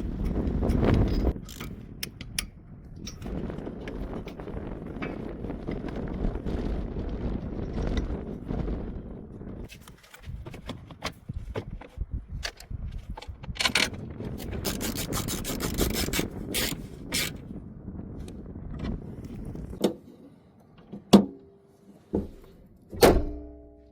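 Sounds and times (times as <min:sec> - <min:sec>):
hand tools scraping and clicking: 0:00.2 - 0:04.4, 0:09.7 - 0:17.4.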